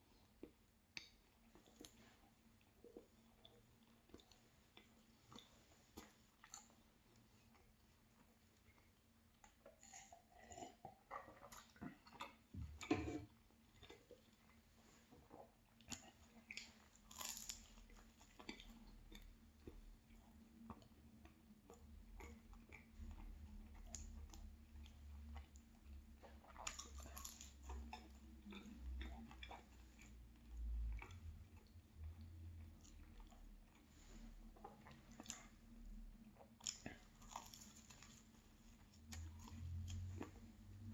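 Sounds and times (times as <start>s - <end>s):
person chewing pastry crunches: 0.2s - 40.9s.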